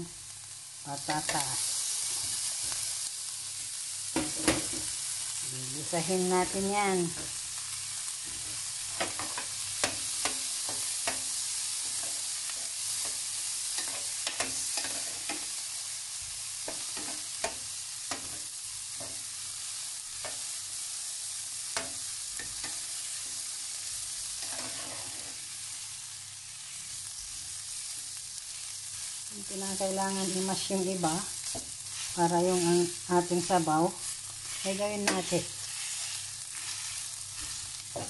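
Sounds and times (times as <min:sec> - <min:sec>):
food sizzling in a pot: 0:00.0 - 0:38.0
metal spoon scraping a pot: 0:24.4 - 0:25.4.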